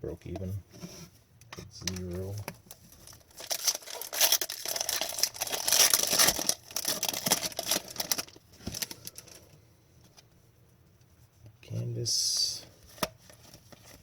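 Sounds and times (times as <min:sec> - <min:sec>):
wrapper tearing and crinkling: 0:02.9 - 0:09.4.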